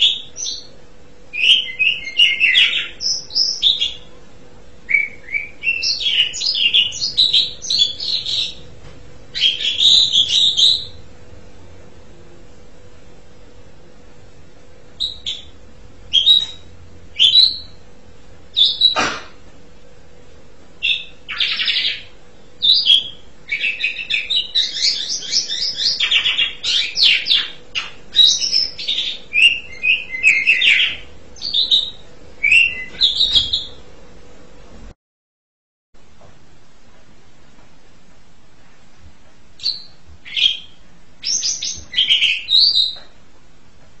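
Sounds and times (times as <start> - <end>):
starling singing: 0.0 - 4.1, 4.9 - 8.7, 9.3 - 11.0, 15.0 - 17.8, 18.6 - 19.2, 20.8 - 33.8, 39.6 - 43.0
faint steady hum: 0.0 - 35.0, 36.0 - 44.0.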